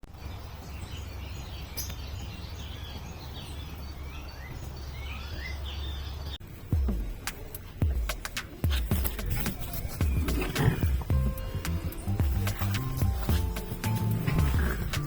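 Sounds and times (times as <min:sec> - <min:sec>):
small birds chirping and singing: 0:00.0 - 0:15.0
steady low rumble: 0:06.4 - 0:15.0.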